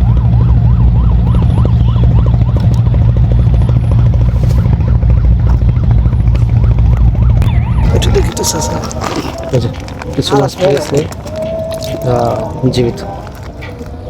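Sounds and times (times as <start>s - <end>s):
low engine drone: 0.0s - 14.0s
warbling siren wail: 0.0s - 14.0s.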